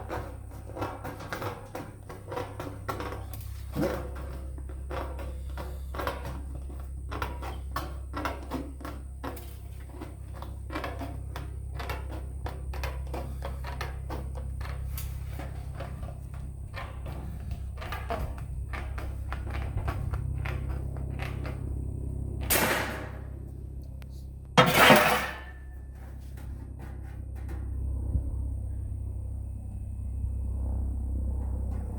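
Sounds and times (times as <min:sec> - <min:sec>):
steady low hum: 0:00.0 - 0:31.9
sheet metal rattling: 0:24.6 - 0:25.7.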